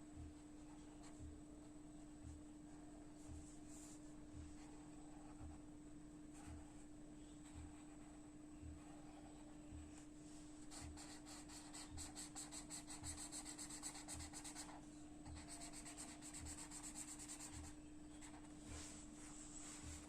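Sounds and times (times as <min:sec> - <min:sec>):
scratchy shading strokes on paper: 0:03.2 - 0:05.6, 0:10.2 - 0:20.0.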